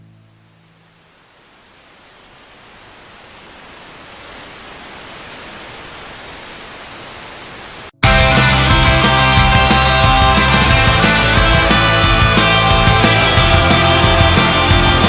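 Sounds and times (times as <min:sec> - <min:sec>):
steady hiss: 0:00.0 - 0:07.9
distorted rock music: 0:08.0 - 0:15.0.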